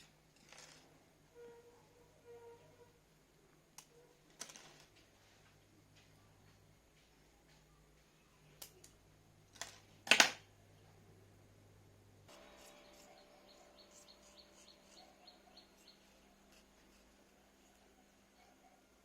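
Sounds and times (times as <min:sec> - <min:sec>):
small bird chirping: 0:12.3 - 0:17.0.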